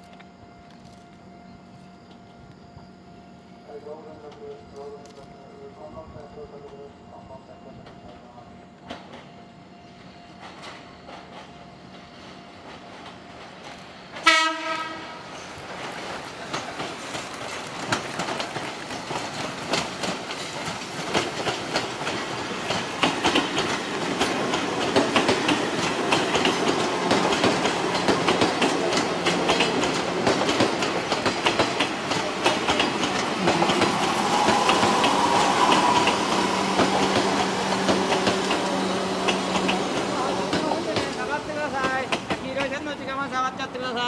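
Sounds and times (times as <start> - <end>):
train wheels clacking over rail joints: 10.4 - 42.8.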